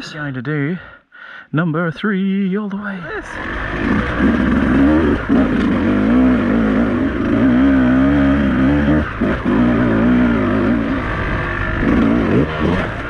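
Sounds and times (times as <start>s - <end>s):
motorcycle engine revving: 3.2s - 13.0s.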